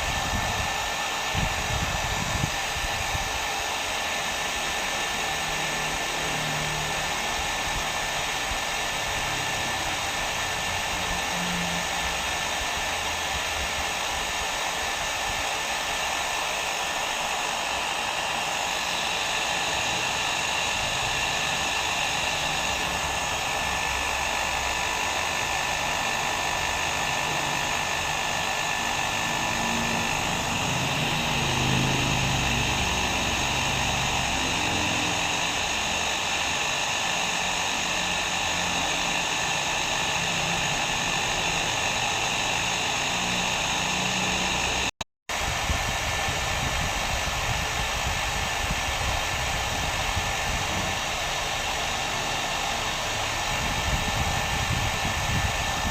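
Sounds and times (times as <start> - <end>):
hair dryer blowing: 0.0 - 55.9.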